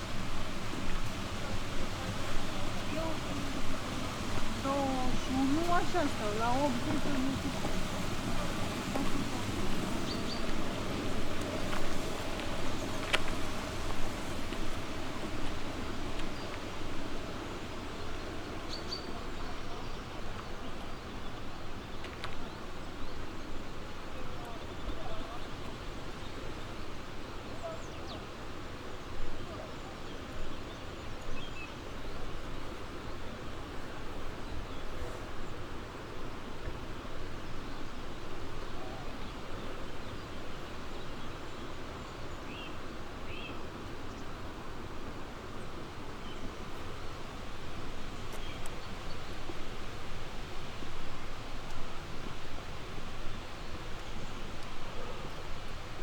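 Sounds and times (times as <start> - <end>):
songbird chirping: 0.0 - 50.8
low rushing background noise: 0.0 - 56.0
small bird chirping: 2.4 - 20.7.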